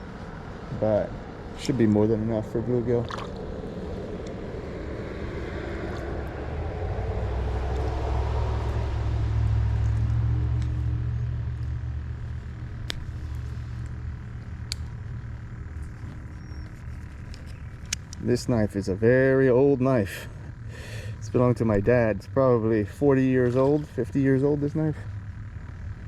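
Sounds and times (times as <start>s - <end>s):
vehicle passing by rumbling: 0.0s - 26.0s
sharp clicks: 13.8s - 15.0s.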